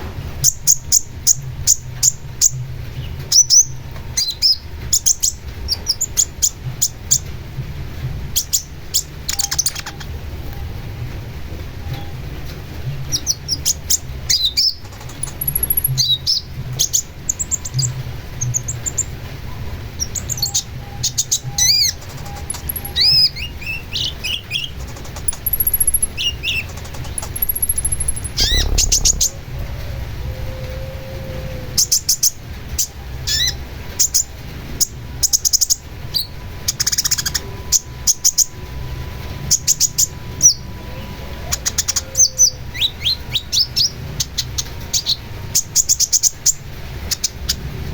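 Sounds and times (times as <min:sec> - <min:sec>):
bird singing chirps and whistles: 0:13.1 - 0:19.1, 0:20.0 - 0:29.6
steady low hum: 0:21.2 - 0:41.3.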